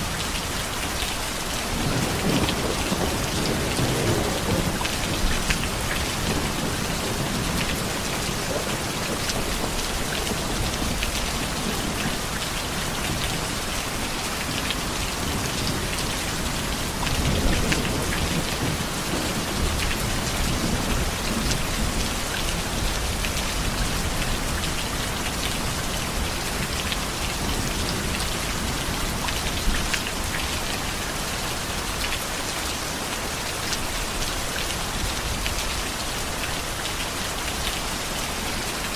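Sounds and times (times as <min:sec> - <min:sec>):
heavy rain: 0:00.0 - 0:38.9
raindrops pattering on surface: 0:00.0 - 0:38.9
thunder rumbling: 0:01.7 - 0:12.2.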